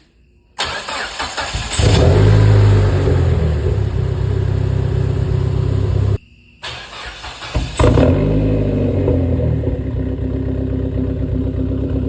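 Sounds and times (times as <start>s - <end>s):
starter motor cranking: 0.6s - 4.3s
car engine starting and idling: 0.6s - 12.0s.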